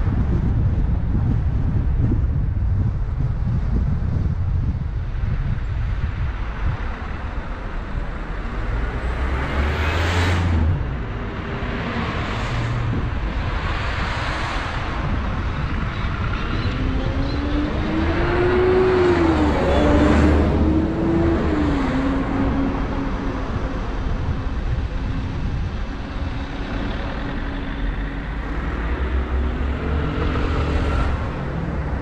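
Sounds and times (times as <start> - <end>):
car engine and tyre rumble: 0.0 - 32.0
vehicles passing by: 0.0 - 32.0
wind noise: 0.0 - 32.0
engine revving up: 8.3 - 15.2, 16.2 - 22.9, 26.9 - 32.0.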